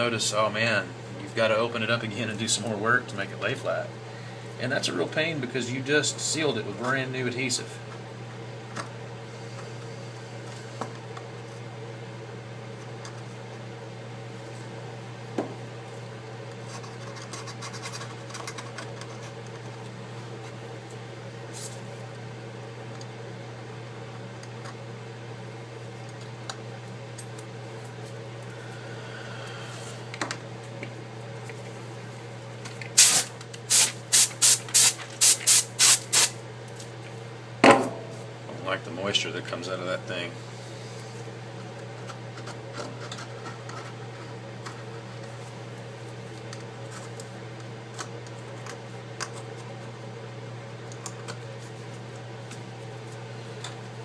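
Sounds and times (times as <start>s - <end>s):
steady low hum: 0.0s - 54.0s
compressed air can hissing bursts: 33.0s - 36.4s.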